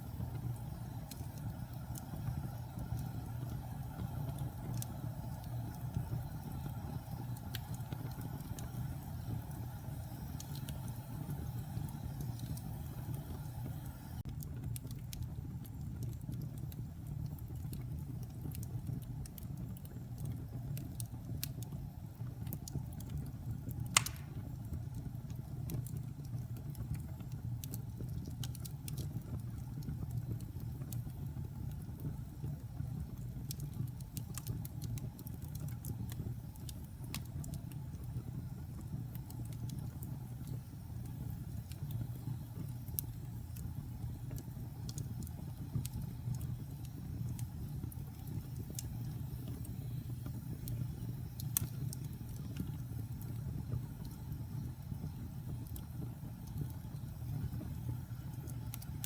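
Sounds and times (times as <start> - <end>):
fire crackles: 0.0 - 59.0
wood fire rumbling: 0.0 - 59.0
sharp loud pop of fire: 24.0 - 24.4.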